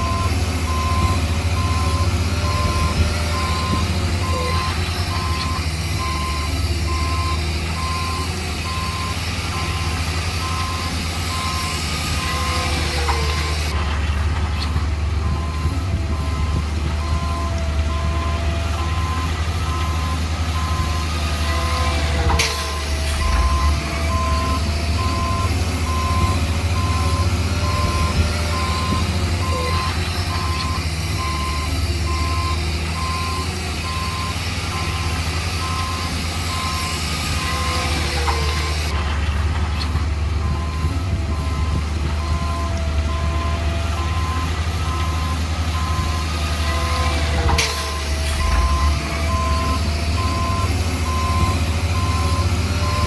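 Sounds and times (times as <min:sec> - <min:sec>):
reversing alarm beeping: 0:00.0 - 0:13.8, 0:15.2 - 0:39.0, 0:40.4 - 0:53.0
diesel engine running: 0:00.0 - 0:53.0
sharp clanks: 0:46.7 - 0:48.9.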